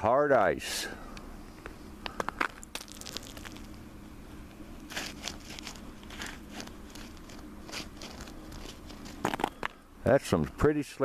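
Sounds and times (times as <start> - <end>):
low background hum: 0.0 - 11.0
footsteps crunching on ice: 2.4 - 3.7.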